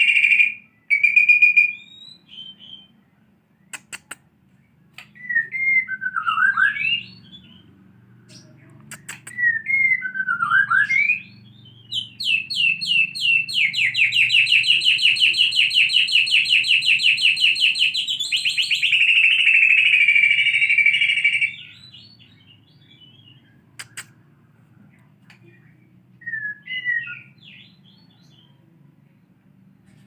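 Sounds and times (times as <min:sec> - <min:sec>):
songbird trilling: 0:08.3 - 0:24.2.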